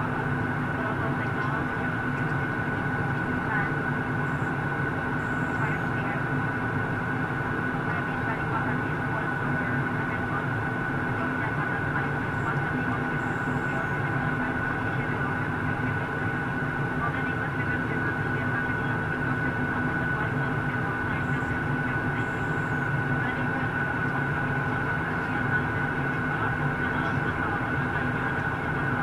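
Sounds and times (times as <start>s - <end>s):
high whine: 0.0s - 17.4s
airliner engines droning: 0.0s - 29.0s.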